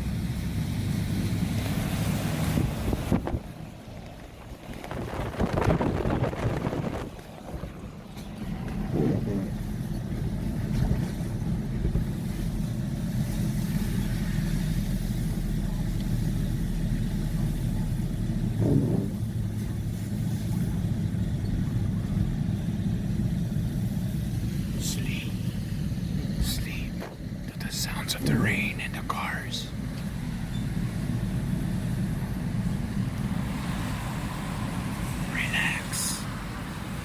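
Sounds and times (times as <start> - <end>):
car engine and road noise: 0.0 - 37.0.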